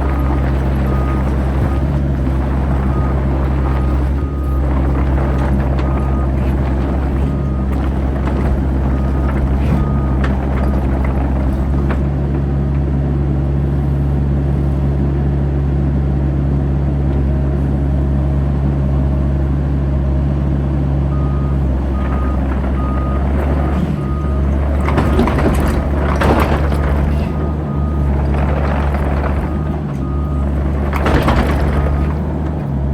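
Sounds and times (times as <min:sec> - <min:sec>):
excavator diesel engine running: 0:00.0 - 0:32.9
travel alarm beeps: 0:21.1 - 0:27.1.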